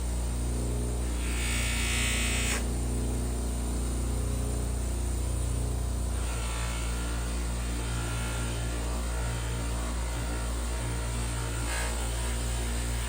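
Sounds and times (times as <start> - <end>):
power tool motor humming: 0.0 - 13.0
grinding hiss on metal: 1.0 - 2.8, 5.4 - 13.0.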